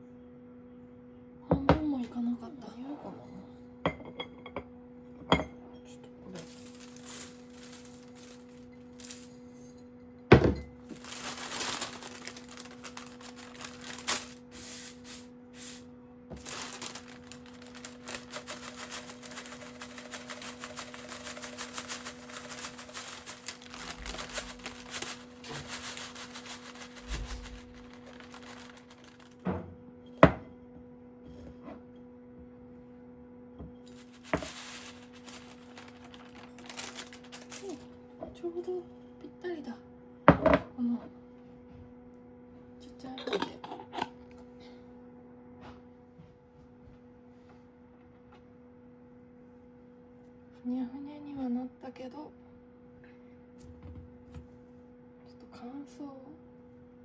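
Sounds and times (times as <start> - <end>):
electrical hum: 1.4 - 30.6
rustling and crackling herbs: 6.3 - 9.6, 10.8 - 29.4, 33.8 - 38.0.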